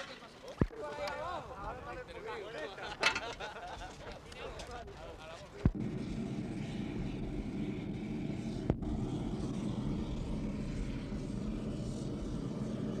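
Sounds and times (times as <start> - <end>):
engine drone: 5.7 - 13.0.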